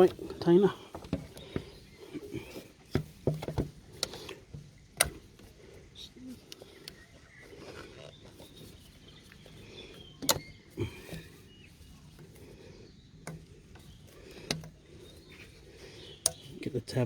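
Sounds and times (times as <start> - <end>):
plastic parts clicking and knocking: 0.0 - 5.6, 10.1 - 11.4, 13.2 - 16.6.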